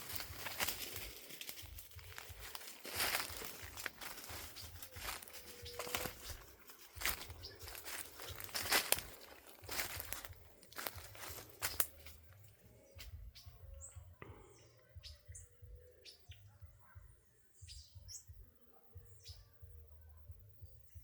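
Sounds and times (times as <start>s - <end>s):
sharp rustles or steps: 0.0s - 12.3s
small bird chirping: 2.0s - 14.2s, 14.8s - 19.6s.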